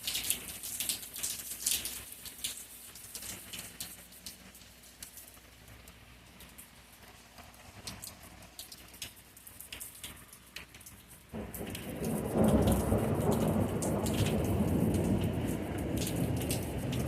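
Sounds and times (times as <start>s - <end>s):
raindrops tapping: 0.0s - 17.0s
thunder rumbling: 11.4s - 17.0s.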